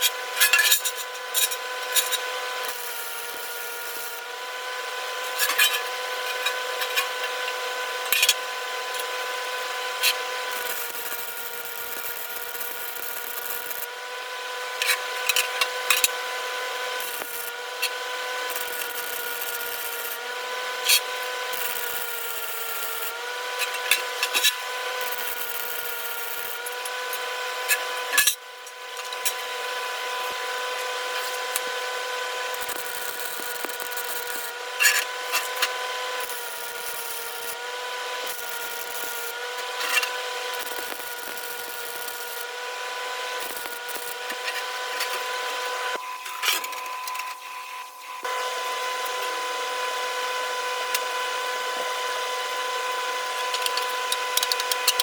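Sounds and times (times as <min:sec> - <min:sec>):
power tool whining: 0:00.0 - 0:55.0
sharp clicks and rasping: 0:53.2 - 0:55.0.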